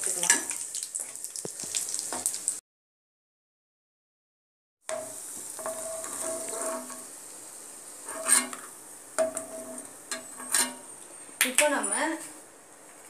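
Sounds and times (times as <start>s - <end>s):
nuts sizzling in hot fat: 0.0s - 2.6s, 4.9s - 12.4s
spatula scraping pan: 4.9s - 7.2s, 8.0s - 11.0s.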